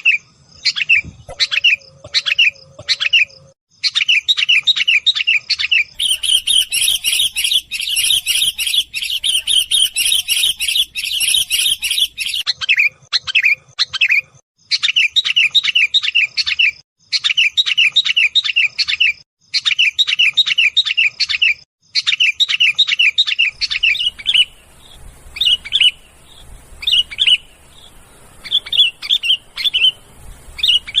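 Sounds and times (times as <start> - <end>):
bulbul chattering call: 6.0 - 14.3, 22.0 - 31.0.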